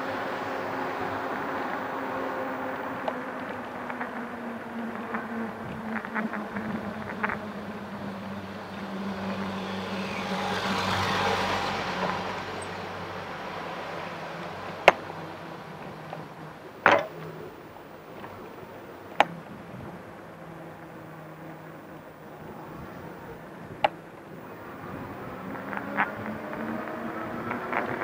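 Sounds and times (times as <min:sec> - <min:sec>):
vehicle passing: 0:00.0 - 0:19.2, 0:19.8 - 0:28.0
city street traffic: 0:00.0 - 0:28.0
sharp knocks: 0:16.8 - 0:17.3.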